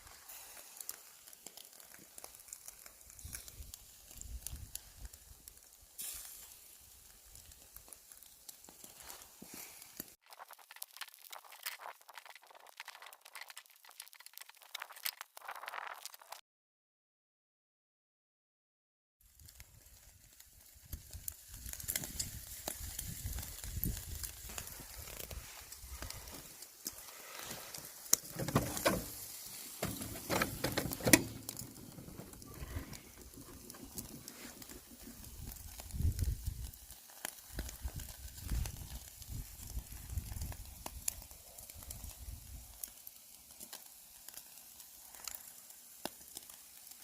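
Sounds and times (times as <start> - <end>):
meat sizzling on a grill: 0.0 - 16.4, 19.2 - 47.0
knocks and clatters on grill: 28.1 - 34.7.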